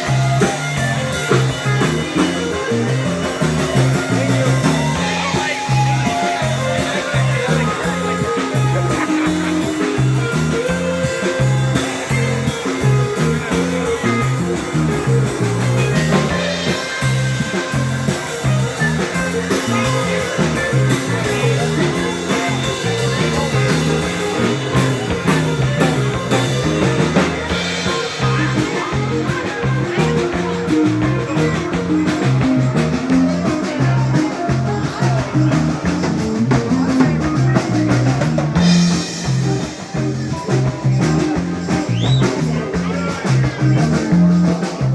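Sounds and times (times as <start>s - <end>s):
bass guitar: 0.0s - 44.9s
drum kit beat: 0.0s - 44.9s
electric guitar: 0.0s - 44.9s.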